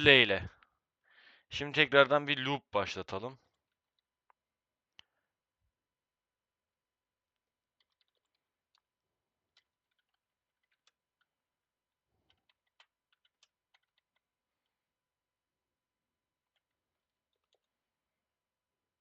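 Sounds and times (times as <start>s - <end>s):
typing on computer keyboard: 7.8s - 8.5s, 12.2s - 14.3s.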